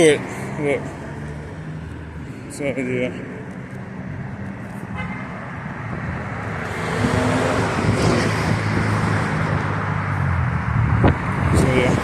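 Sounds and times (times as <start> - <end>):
motor vehicle passing close: 6.1 - 12.0.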